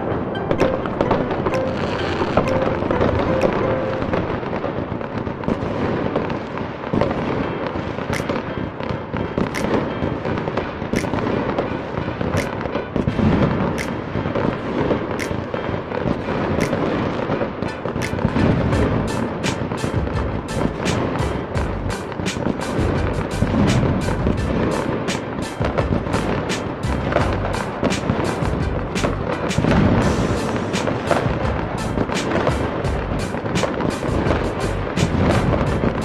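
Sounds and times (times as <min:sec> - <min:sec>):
music playing: 0:00.0 - 0:05.0, 0:17.6 - 0:36.0
fireworks bangs and crackles: 0:00.0 - 0:36.0.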